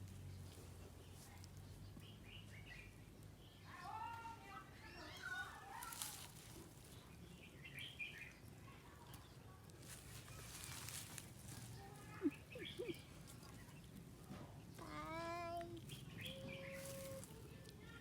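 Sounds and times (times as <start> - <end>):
bird chirps: 12.1 - 14.0, 15.8 - 17.2.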